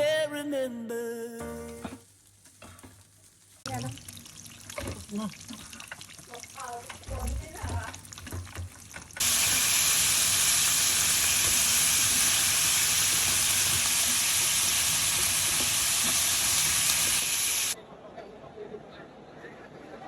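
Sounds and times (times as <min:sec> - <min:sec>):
food sizzling in hot oil: 0:02.0 - 0:17.8.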